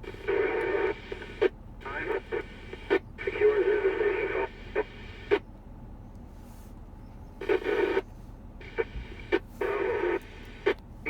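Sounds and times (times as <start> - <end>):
radio static hiss: 0.0 - 5.4, 7.4 - 8.0, 8.6 - 11.0
radio signal bursts: 8.6 - 10.8.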